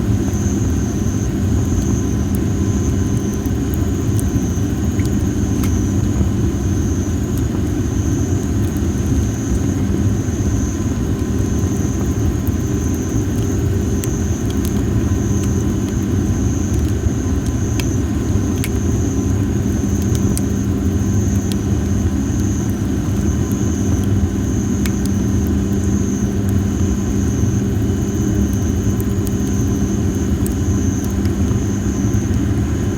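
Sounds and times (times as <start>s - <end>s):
campfire crackling and popping: 0.0s - 32.9s.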